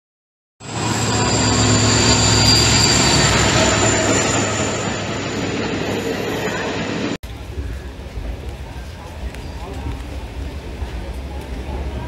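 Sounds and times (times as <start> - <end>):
thin high whine: 0.6 - 7.2
passenger train rushing past: 0.6 - 12.0.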